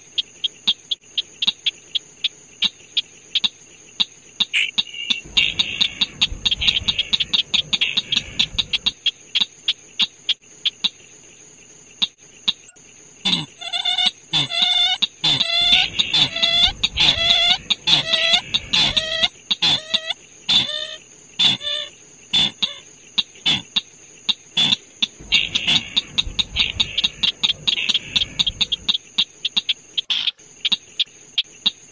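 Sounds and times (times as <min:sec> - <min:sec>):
high-pitched whine: 0:05.2 - 0:08.9, 0:25.2 - 0:28.9
harsh downward-sliding bird calls: 0:05.2 - 0:09.1, 0:13.6 - 0:22.8, 0:24.6 - 0:30.4.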